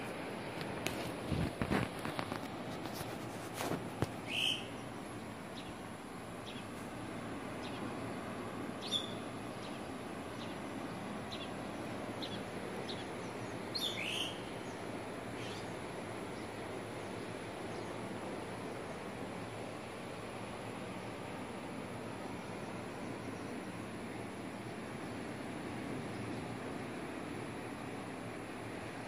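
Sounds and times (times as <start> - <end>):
birds chirping: 4.2 - 5.8, 6.4 - 6.8, 8.8 - 18.0.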